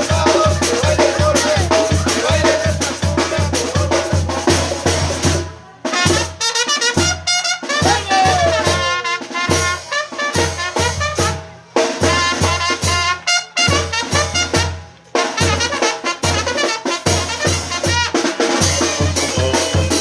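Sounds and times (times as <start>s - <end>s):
trumpets and brass playing: 5.8s - 20.0s.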